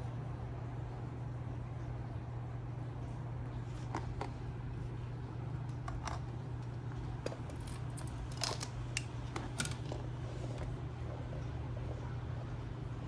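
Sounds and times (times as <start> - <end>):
steady low hum: 0.0 - 13.0
metallic clinks of objects handled: 7.2 - 9.8.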